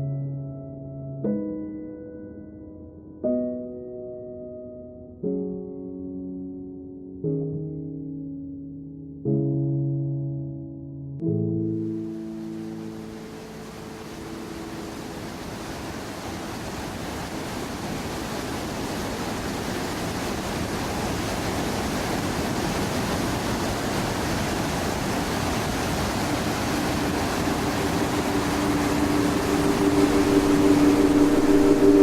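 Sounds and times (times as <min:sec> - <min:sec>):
waterfall rushing: 0:11.9 - 0:32.0
low hum: 0:26.7 - 0:32.0.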